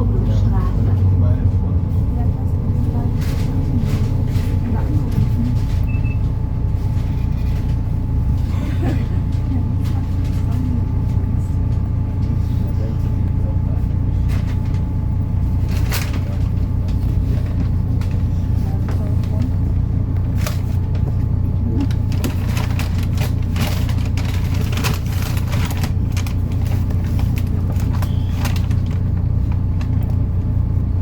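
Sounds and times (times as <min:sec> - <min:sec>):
interior rattles and clicks: 0:00.0 - 0:12.4, 0:14.0 - 0:30.9
bus diesel engine drone: 0:00.0 - 0:31.0.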